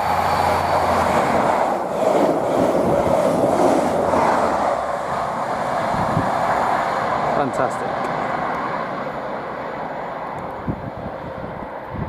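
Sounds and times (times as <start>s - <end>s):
diesel train engines: 0.0s - 12.0s
train wheels on rail: 0.0s - 12.0s.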